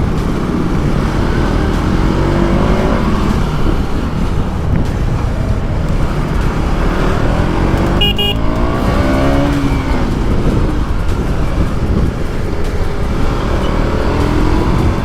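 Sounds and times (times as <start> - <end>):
engine rising and falling: 0.0 - 15.0
wind rumble on microphone: 0.0 - 15.0
double horn beep: 7.9 - 8.8.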